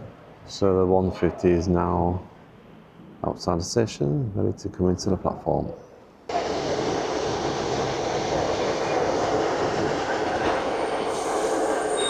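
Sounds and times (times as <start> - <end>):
train running rumble and hiss: 6.3 - 12.0
high squeal: 10.3 - 12.0.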